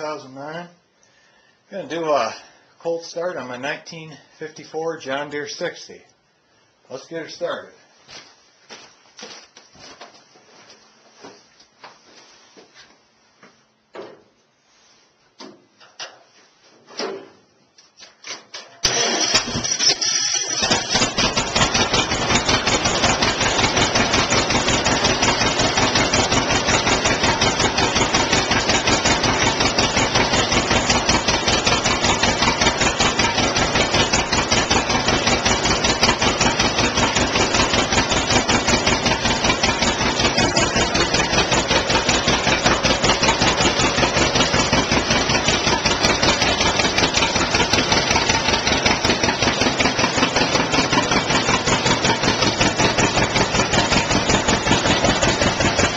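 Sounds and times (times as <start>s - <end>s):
two-cylinder tractor engine running: 18.8s - 55.9s.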